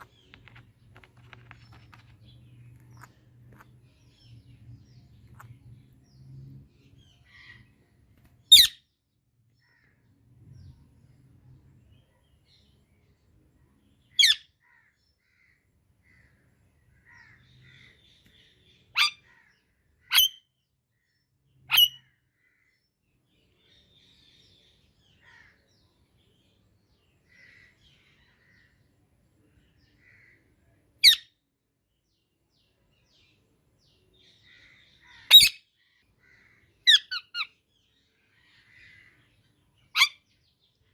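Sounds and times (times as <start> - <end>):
faint soft bird chirps: 0.0 - 40.9
parakeet sharp high calls: 19.0 - 19.3, 39.9 - 40.2.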